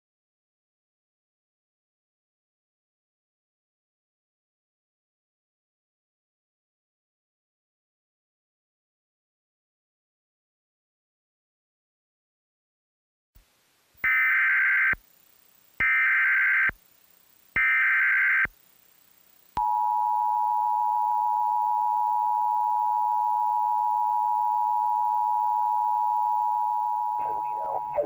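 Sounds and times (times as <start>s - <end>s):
warbling data tones: 15.8s - 16.8s, 17.4s - 19.8s, 20.4s - 28.0s.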